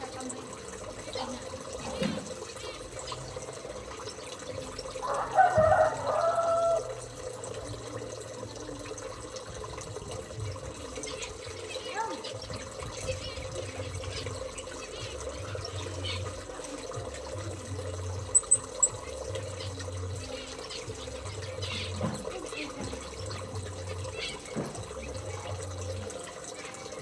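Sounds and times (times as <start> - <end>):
water trickling: 0.0 - 27.0
small bird chirping: 18.3 - 24.6.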